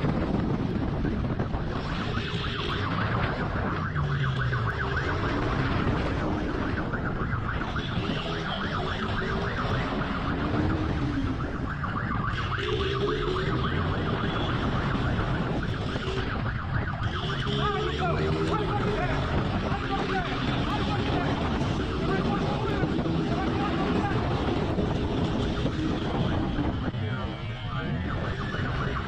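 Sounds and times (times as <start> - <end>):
heavy wind noise: 0.0 - 29.0
siren wailing: 0.0 - 29.0.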